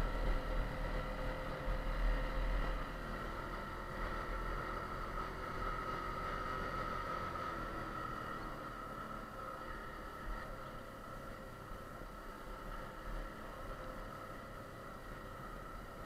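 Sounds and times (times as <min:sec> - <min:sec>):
trail bike engine running: 0:00.0 - 0:16.0.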